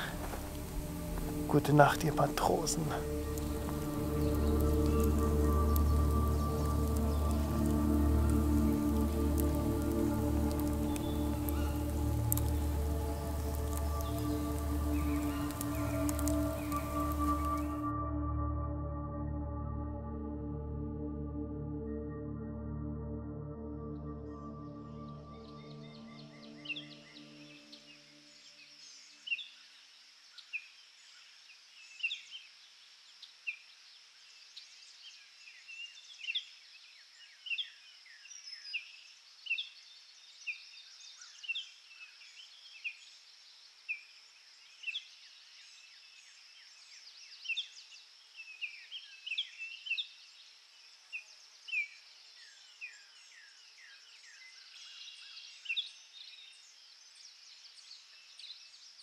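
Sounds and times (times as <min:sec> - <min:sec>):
small birds chirping: 0:00.0 - 0:17.9
steady high-pitched hiss: 0:00.0 - 0:20.4.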